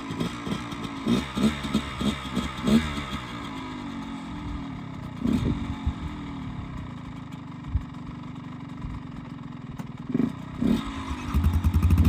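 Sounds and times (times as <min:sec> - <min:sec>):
dirt bike engine revving: 0:00.0 - 0:03.8, 0:05.2 - 0:06.6, 0:10.1 - 0:12.0.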